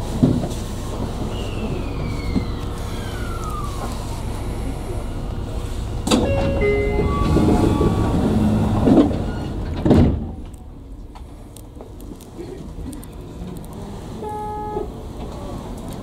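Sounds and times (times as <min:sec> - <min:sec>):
electric train running: 0:02.4 - 0:09.7.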